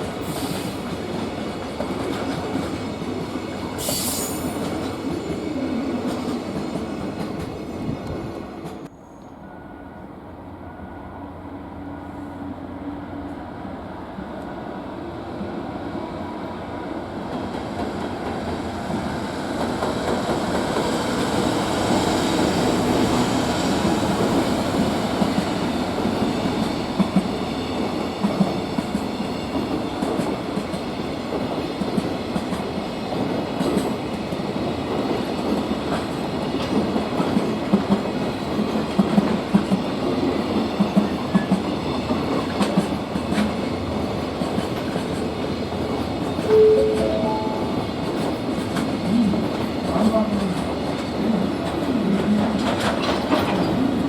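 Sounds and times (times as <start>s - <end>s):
freight train rolling past: 0.0s - 54.0s.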